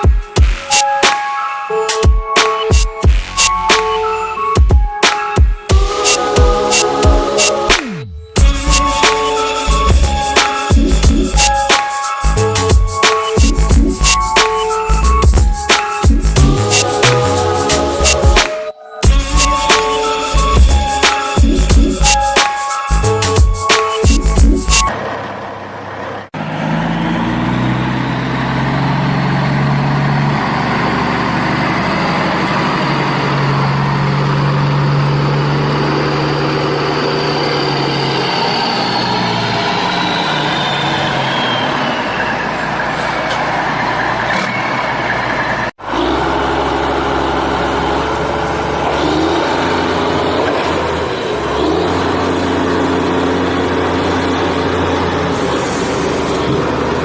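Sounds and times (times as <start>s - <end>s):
engine whine: 3.2s - 57.0s
vehicle engine running: 42.6s - 57.0s.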